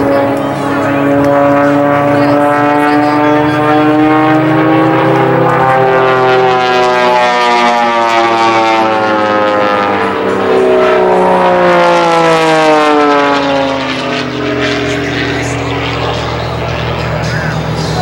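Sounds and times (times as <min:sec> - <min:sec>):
propeller airplane engine droning: 0:00.0 - 0:18.0.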